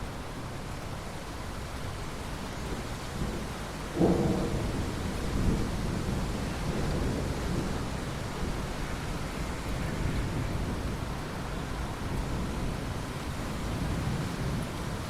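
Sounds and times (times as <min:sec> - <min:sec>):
steady rain hiss: 0:00.0 - 0:15.0
thunder rumbling: 0:03.2 - 0:08.7.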